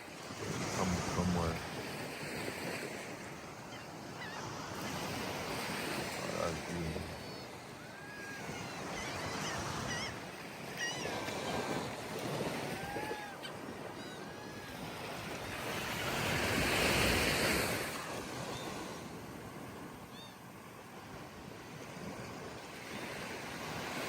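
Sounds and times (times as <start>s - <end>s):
surf washing on sandy beach: 0.0s - 24.0s
whistled bird calls: 7.2s - 11.3s.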